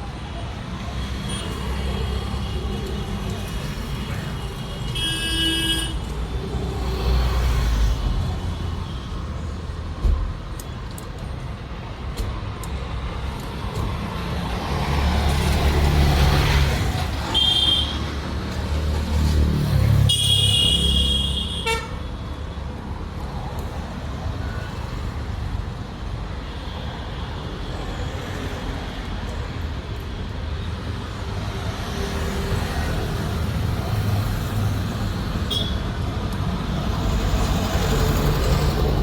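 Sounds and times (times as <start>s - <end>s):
vehicle horn honking: 4.9s - 6.0s, 20.1s - 22.0s, 35.5s - 35.8s.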